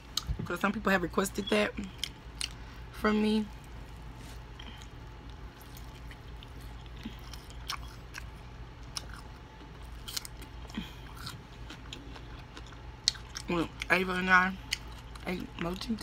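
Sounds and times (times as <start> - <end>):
chewing fried chicken: 3.5 - 16.0.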